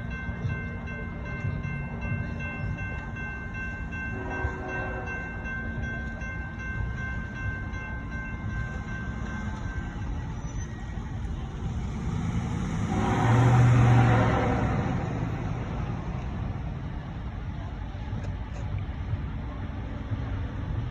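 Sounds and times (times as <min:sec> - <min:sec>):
crossing bell ringing: 0:00.0 - 0:17.0
train rumbling past: 0:00.0 - 0:20.9.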